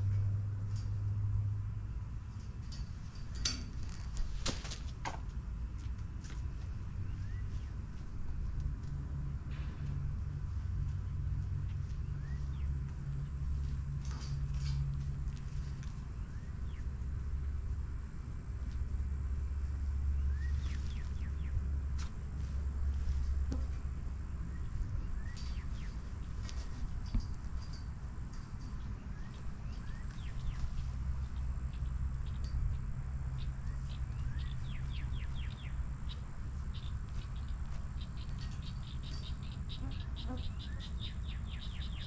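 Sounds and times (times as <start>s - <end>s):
small birds chirping: 11.8s - 14.8s, 15.5s - 17.3s, 19.6s - 42.0s
high insect drone: 12.2s - 42.0s.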